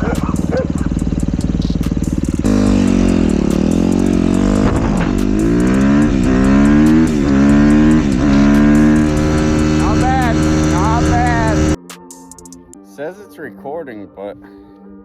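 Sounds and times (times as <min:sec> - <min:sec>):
dirt bike engine accelerating: 0:00.0 - 0:11.8.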